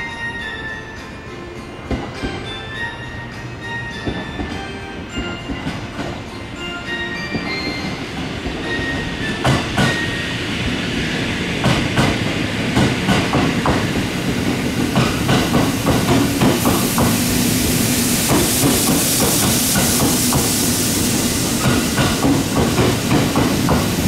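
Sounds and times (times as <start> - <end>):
electric train rolling past: 0.0 - 24.0
hiss: 12.8 - 24.0.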